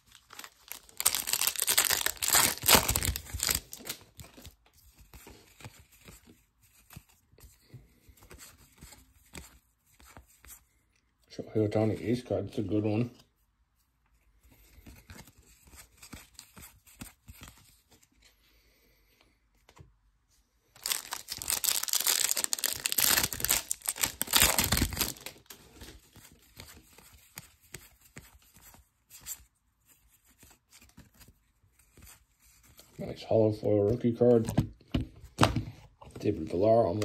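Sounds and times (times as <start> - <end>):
foil wrappers tearing and crinkling: 0.0 - 4.3, 20.8 - 25.6
cards being shuffled: 0.0 - 10.6, 14.5 - 18.2, 20.8 - 33.0, 36.1 - 37.0.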